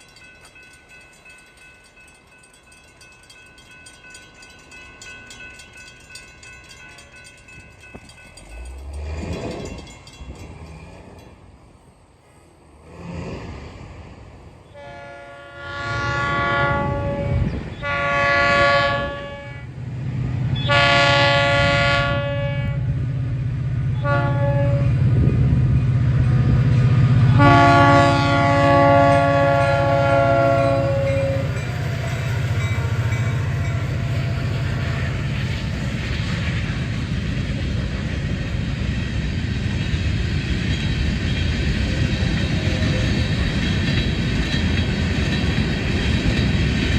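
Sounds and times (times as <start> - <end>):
train engine rumble: 0.0 - 46.9
train rolling by: 0.0 - 46.9
locomotive air horn blasts: 14.7 - 19.7, 20.6 - 22.9, 24.0 - 25.0, 27.2 - 31.6.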